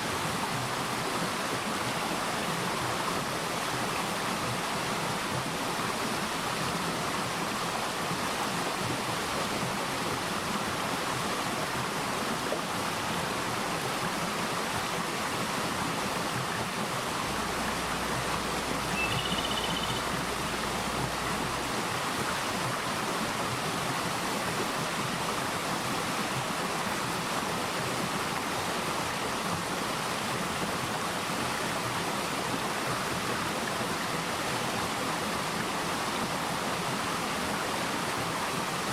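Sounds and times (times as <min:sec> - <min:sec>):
stream flowing: 0:00.0 - 0:38.9
bird chirp: 0:18.8 - 0:20.2.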